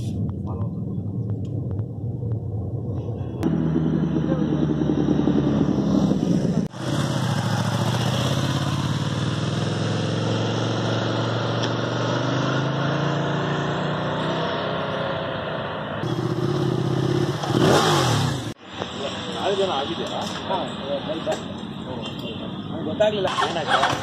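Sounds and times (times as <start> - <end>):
vehicle engine running: 0.0 - 10.7.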